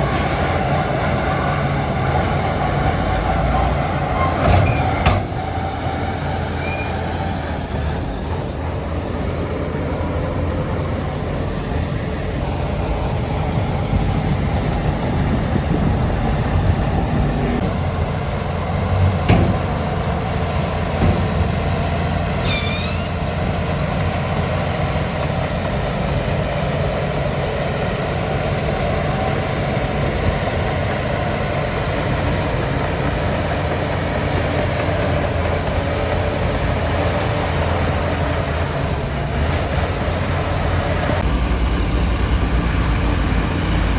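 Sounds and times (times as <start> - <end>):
heavy diesel machinery running: 0.0 - 43.9
brief high squeal: 6.5 - 7.0, 22.4 - 23.4.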